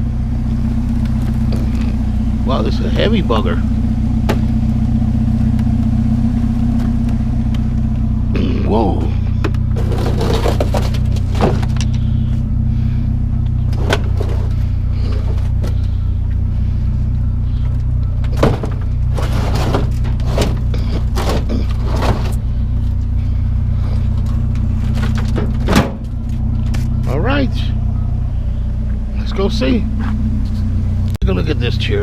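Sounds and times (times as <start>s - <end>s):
truck engine humming: 0.0s - 32.0s
sharp knocks and clunks: 4.2s - 4.6s, 9.4s - 11.9s, 18.2s - 22.4s, 25.0s - 26.2s.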